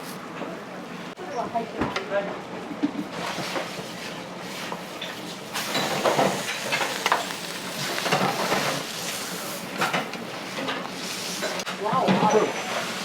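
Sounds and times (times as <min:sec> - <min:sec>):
food sizzling on a griddle: 0:04.5 - 0:11.6.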